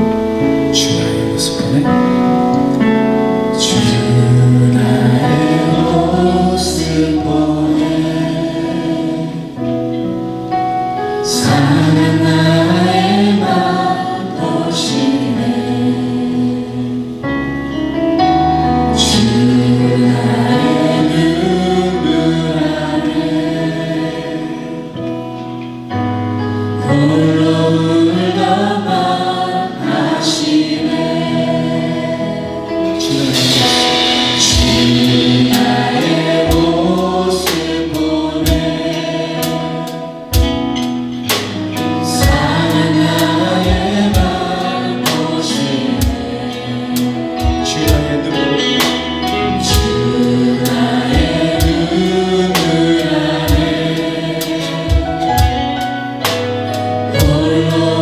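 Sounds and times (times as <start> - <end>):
keyboard and bass notes: 0.0 - 58.0
voices singing: 3.4 - 9.9, 11.1 - 17.3, 18.6 - 25.2, 26.8 - 58.0
drum beat: 33.2 - 38.8.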